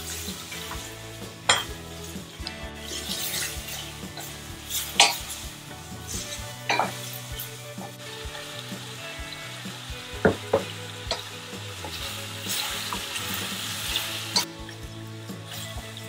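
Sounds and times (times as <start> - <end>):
spatula stirring: 0.0 - 9.5
food sizzling in a pot: 0.0 - 16.0.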